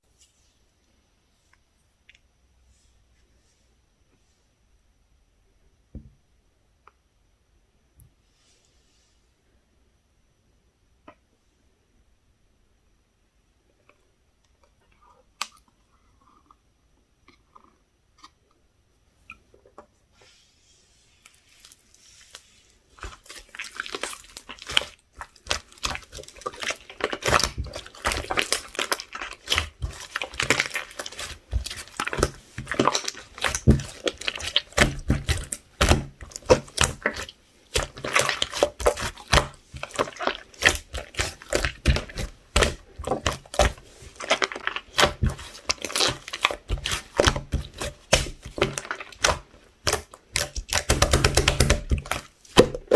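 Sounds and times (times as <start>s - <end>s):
slime squished by hand: 21.3s - 52.9s.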